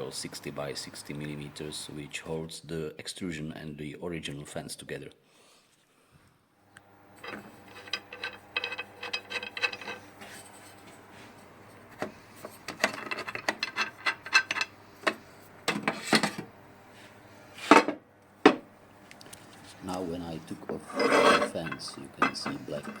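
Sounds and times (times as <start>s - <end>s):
knocks and rattles: 7.2s - 10.0s, 12.7s - 16.4s
loud metal scrape: 7.2s - 10.8s, 20.8s - 23.0s.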